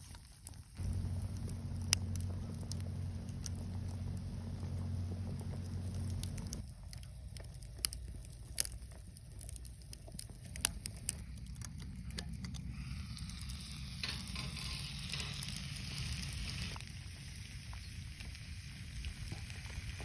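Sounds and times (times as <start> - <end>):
food sizzling over fire: 0.0 - 20.0
low rumble: 0.8 - 17.5.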